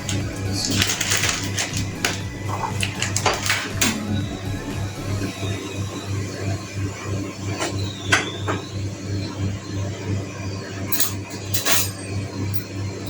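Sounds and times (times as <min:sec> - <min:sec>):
kitchen utensils clinking: 0:00.0 - 0:04.4, 0:10.9 - 0:12.8
steady low hum: 0:00.0 - 0:11.7.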